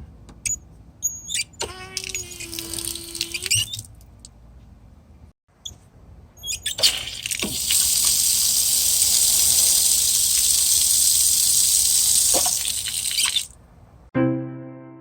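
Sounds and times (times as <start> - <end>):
faucet handle squeak: 0.5 - 3.9, 6.4 - 7.6, 12.3 - 13.5
water gushing from faucet: 2.0 - 3.8, 6.7 - 13.6.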